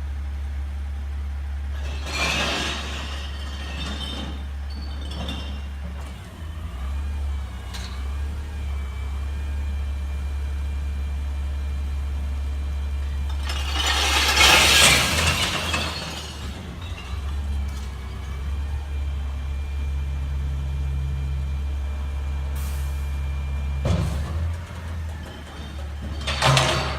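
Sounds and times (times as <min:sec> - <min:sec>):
glass bottles crashing: 0:01.8 - 0:06.0, 0:13.3 - 0:18.0, 0:25.3 - 0:26.9
truck idling: 0:02.7 - 0:26.9.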